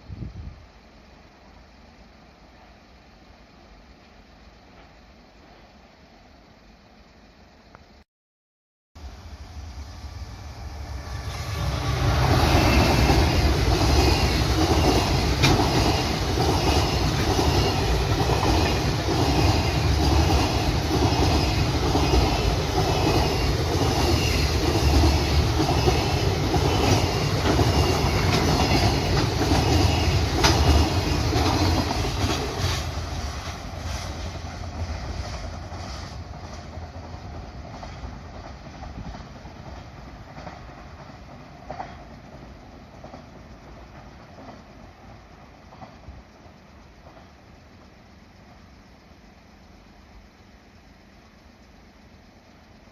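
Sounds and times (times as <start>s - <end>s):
freight train wheels clattering: 11.0s - 48.6s.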